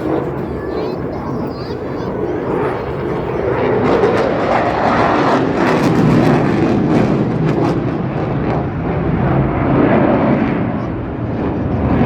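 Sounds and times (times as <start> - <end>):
fighter jet engines roaring: 0.0 - 12.0.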